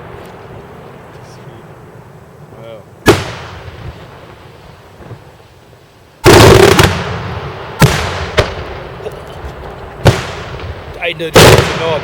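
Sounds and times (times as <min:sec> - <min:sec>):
fireworks bursting: 0:00.0 - 0:12.0
sharp bangs echoing: 0:03.0 - 0:05.1, 0:06.2 - 0:09.0, 0:10.0 - 0:12.0.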